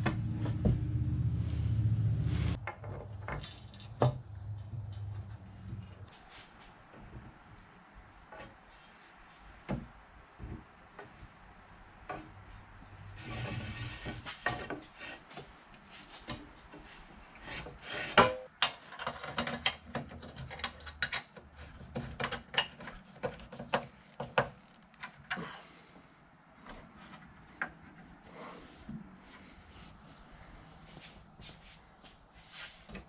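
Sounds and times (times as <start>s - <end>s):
workshop parts knocking and clicking: 2.6s - 5.3s, 17.7s - 25.4s.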